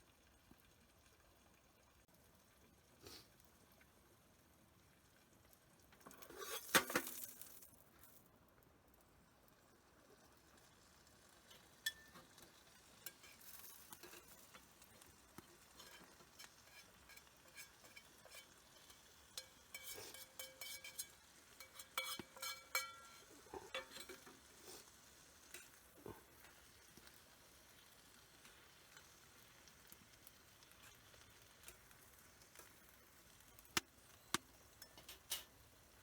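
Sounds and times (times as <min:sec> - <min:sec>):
faint sizzle: 0:00.0 - 0:36.0
metal utensils scraping in pan: 0:06.1 - 0:07.4, 0:11.5 - 0:27.2, 0:28.3 - 0:32.9, 0:34.2 - 0:35.7.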